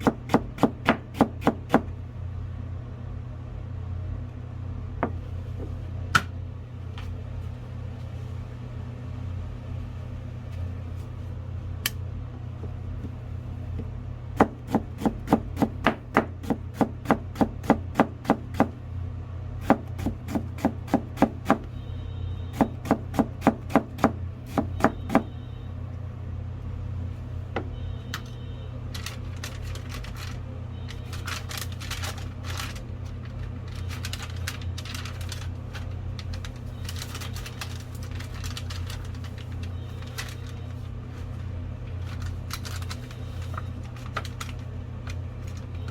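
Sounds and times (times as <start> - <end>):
knife chopping on cutting board: 0.0 - 1.9, 19.6 - 21.6, 22.6 - 25.2
steady low hum: 0.0 - 45.9.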